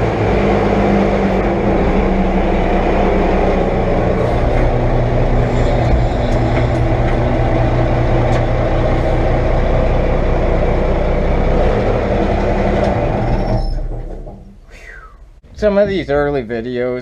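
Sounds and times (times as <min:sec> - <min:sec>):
diesel engine running: 0:00.0 - 0:16.4.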